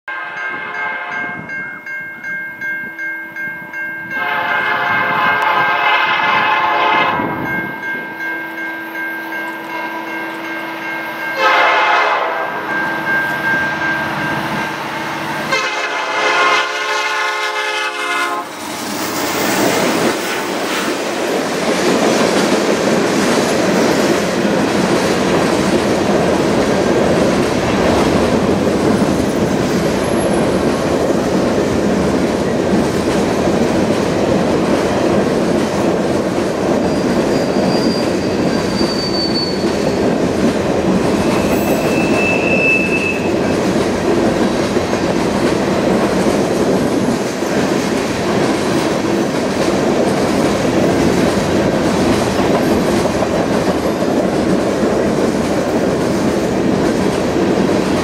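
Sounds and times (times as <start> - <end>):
locomotive air horn blasts: 0.1 - 1.3, 4.1 - 7.4, 11.4 - 12.6, 15.5 - 18.6
train wheels rolling on rails: 0.5 - 58.0
faint wheel squeal: 36.8 - 40.0, 41.2 - 43.3.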